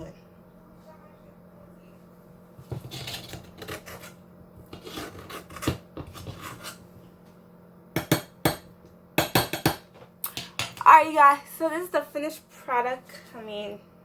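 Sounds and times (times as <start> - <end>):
spoon scraping a pot: 2.6 - 6.9.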